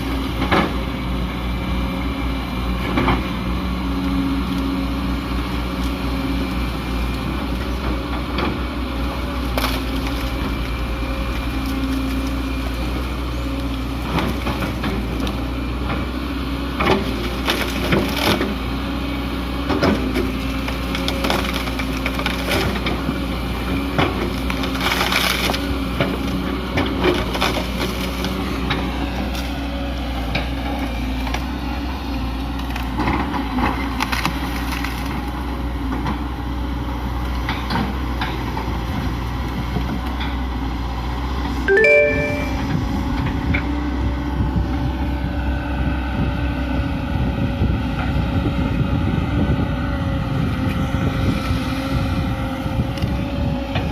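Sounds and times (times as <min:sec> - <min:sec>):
excavator diesel engine running: 0:00.0 - 0:53.9
wood cracking and crunching: 0:09.3 - 0:13.0, 0:20.3 - 0:22.8, 0:24.0 - 0:29.6, 0:32.5 - 0:35.4.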